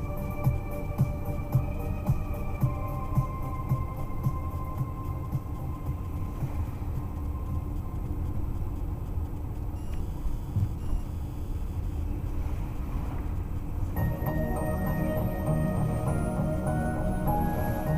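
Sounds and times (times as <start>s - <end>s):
road traffic rumble: 0.0s - 17.9s.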